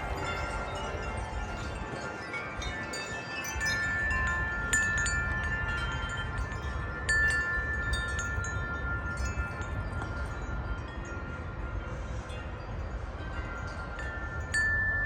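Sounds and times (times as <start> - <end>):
gusty wind: 0.0 - 15.0
wind chimes ringing: 0.0 - 15.0.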